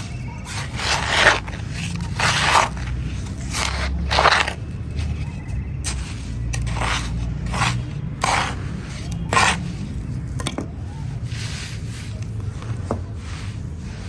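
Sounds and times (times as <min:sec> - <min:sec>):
scraping strokes: 0:00.0 - 0:14.0.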